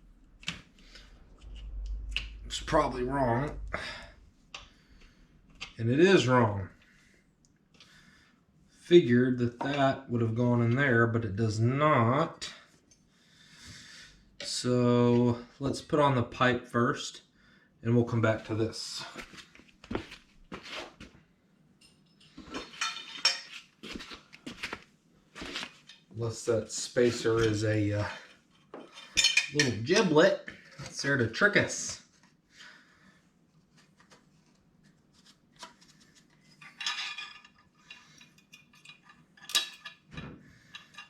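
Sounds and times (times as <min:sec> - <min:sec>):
metal parts clinking and knocking: 0:36.6 - 0:40.1, 0:40.7 - 0:41.0.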